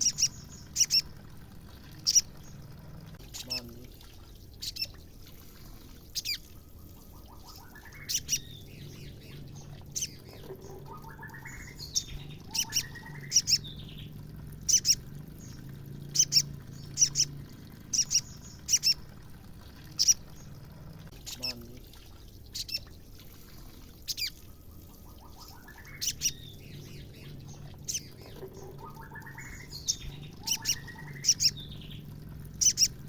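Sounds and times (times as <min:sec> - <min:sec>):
bird chipping calls: 0:00.0 - 0:01.2, 0:01.9 - 0:05.1, 0:06.1 - 0:19.1, 0:19.8 - 0:21.6, 0:22.2 - 0:22.9, 0:24.0 - 0:33.0
bird trilled phrases: 0:00.0 - 0:05.0, 0:06.2 - 0:22.9, 0:24.1 - 0:33.0.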